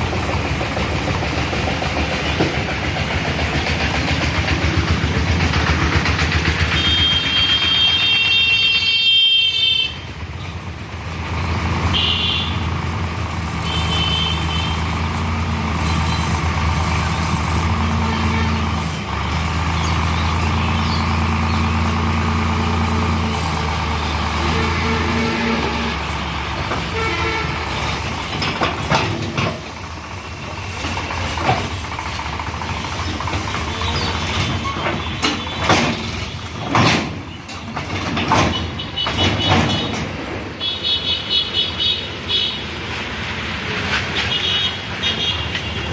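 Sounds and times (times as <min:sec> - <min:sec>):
sharp knocks and clatter: 0:00.0 - 0:08.0, 0:27.7 - 0:29.9, 0:30.8 - 0:40.4
heavy diesel engine running: 0:00.0 - 0:45.9.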